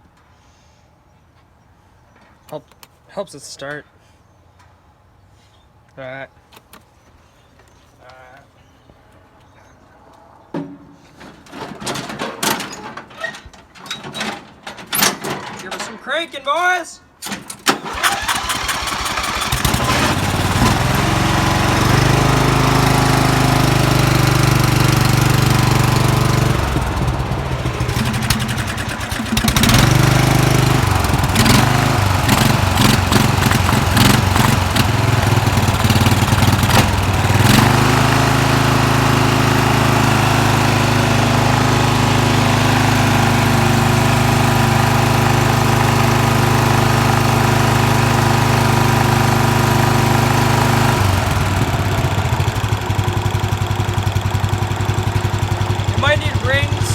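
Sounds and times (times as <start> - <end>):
lawn mower engine cranking: 11.4 - 16.0, 17.2 - 56.9
lawn mower engine running unevenly: 17.5 - 56.9.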